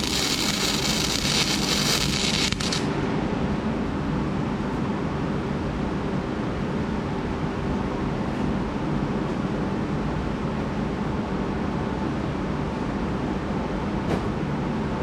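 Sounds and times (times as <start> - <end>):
arc welding crackle: 0.0 - 2.9
low rumbling background noise: 0.0 - 15.0.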